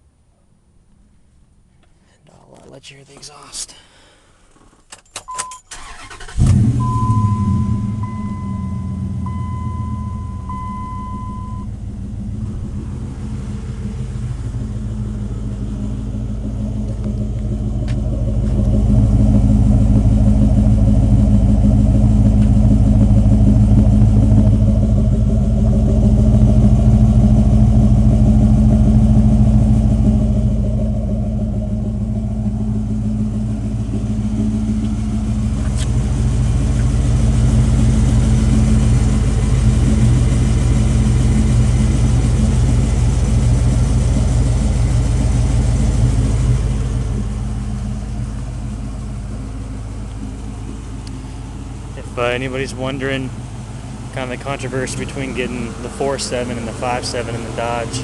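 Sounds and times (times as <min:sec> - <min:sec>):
truck engine idling: 0:05.7 - 0:58.0
electronic chime tone: 0:06.8 - 0:11.8.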